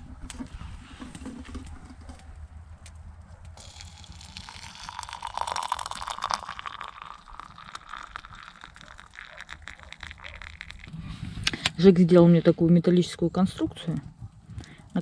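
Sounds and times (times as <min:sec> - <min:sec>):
wood fire crackling: 0:00.0 - 0:10.9.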